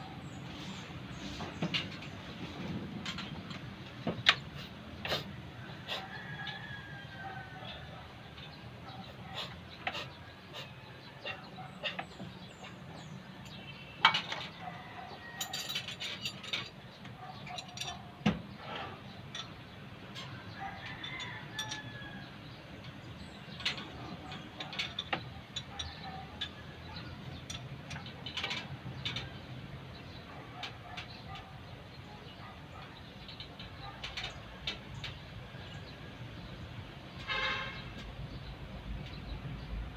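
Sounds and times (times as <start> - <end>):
metal tools clinking and knocking: 3.0 - 4.5, 11.3 - 22.2, 22.8 - 29.6, 32.7 - 35.2.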